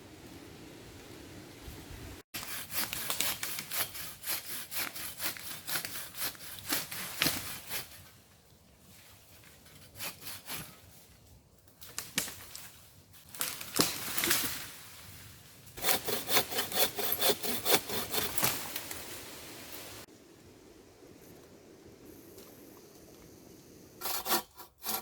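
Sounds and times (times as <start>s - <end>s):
hand saw cutting wood: 2.4s - 8.0s, 9.8s - 10.8s, 15.8s - 18.8s, 24.0s - 25.0s.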